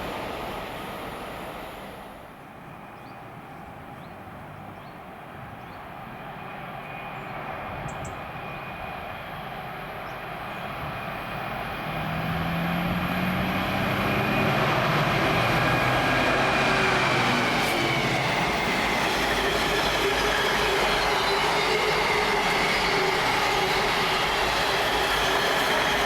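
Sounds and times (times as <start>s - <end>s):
train approaching: 0.0s - 26.0s
high whine: 11.4s - 26.0s.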